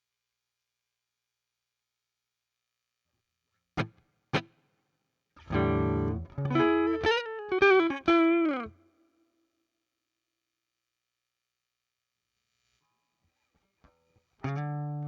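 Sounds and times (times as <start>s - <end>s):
electric guitar playing: 5.4s - 8.8s, 14.4s - 15.0s.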